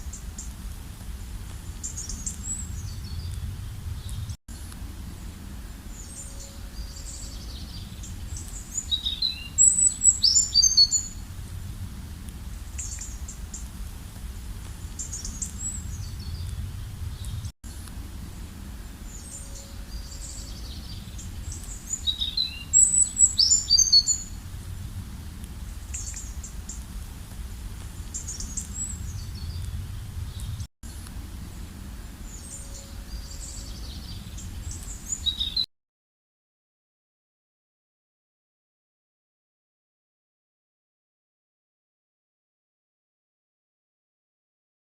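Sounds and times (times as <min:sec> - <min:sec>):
small birds chirping: 0:00.0 - 0:17.5, 0:18.2 - 0:35.7
steady low rumble: 0:00.0 - 0:35.2.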